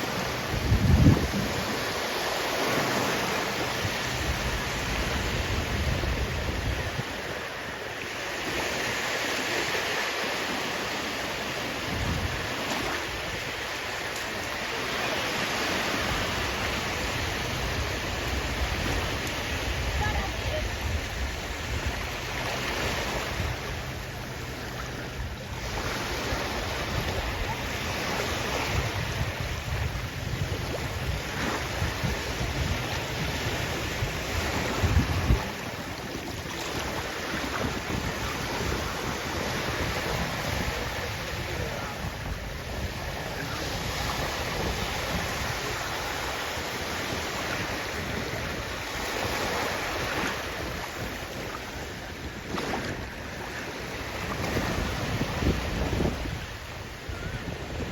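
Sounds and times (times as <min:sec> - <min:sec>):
sea waves washing on shore: 0:00.0 - 0:57.9
wind rumble on microphone: 0:00.0 - 0:57.9.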